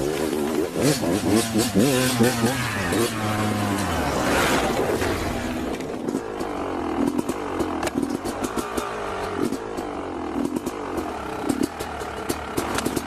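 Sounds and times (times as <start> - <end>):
motorcycle engine revving: 0.0 - 13.0
sharp clicks and knocks: 5.7 - 13.0.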